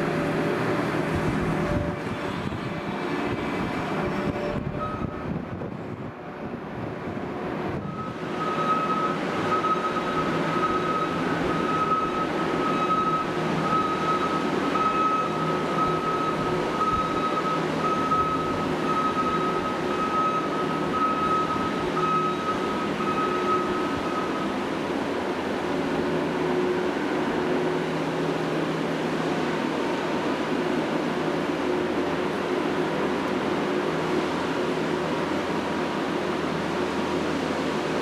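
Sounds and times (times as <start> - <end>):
loader engine running: 0.0 - 38.0
reversing alarm beeping: 4.3 - 5.4, 7.8 - 25.0.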